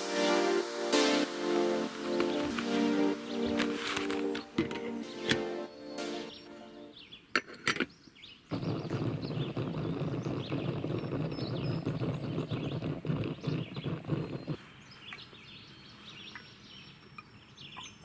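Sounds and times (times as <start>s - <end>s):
small birds chirping: 1.4s - 18.0s
low rushing crackling noise: 8.5s - 14.6s.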